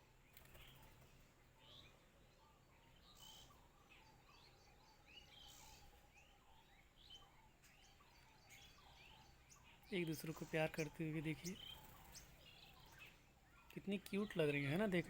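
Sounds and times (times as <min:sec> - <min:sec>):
low steady background hum: 0:00.0 - 0:15.0
small birds chirping: 0:00.0 - 0:15.0.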